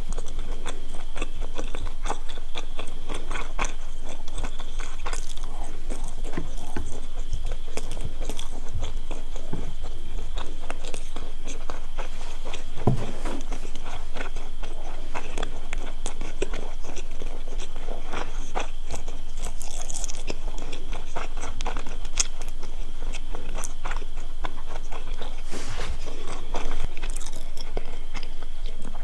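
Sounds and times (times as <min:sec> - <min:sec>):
chewing fried food: 0:00.0 - 0:29.0
heavy low knock: 0:12.8 - 0:13.6.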